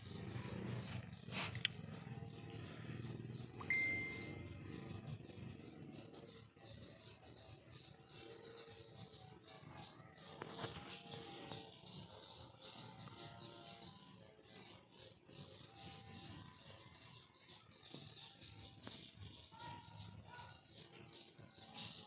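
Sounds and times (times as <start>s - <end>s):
birds chirping faintly: 0.0s - 22.0s.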